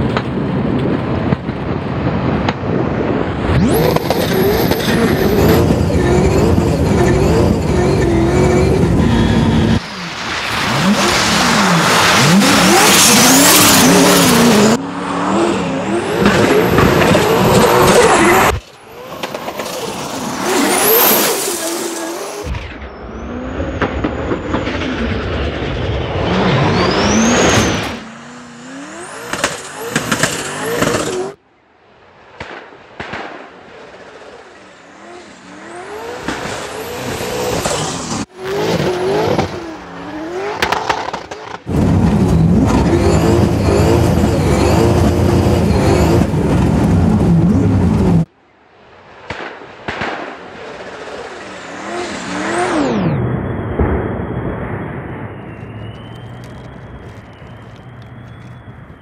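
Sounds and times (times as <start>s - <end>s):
car engine revving hard: 3.6s - 18.6s, 26.3s - 31.4s, 35.0s - 48.3s, 51.6s - 53.2s.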